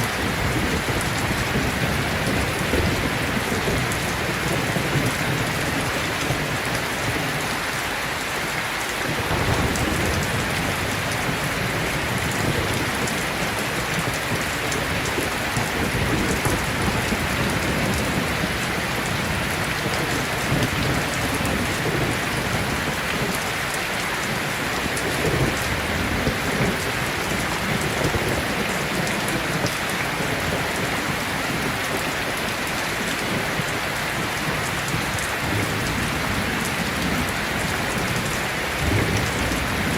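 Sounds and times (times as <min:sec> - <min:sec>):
heavy rain falling: 0:00.0 - 0:39.9
distant thunder rumbling: 0:09.0 - 0:23.4, 0:33.3 - 0:39.9.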